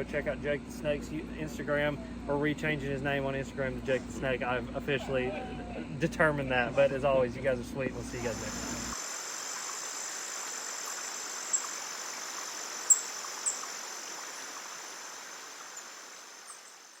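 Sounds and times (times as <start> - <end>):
insects chirring: 7.9 - 17.0.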